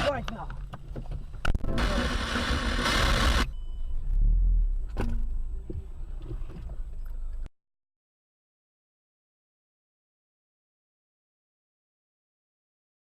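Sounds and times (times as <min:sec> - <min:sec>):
vehicle low rumble: 0:00.2 - 0:07.5
loud hiss: 0:01.7 - 0:03.5.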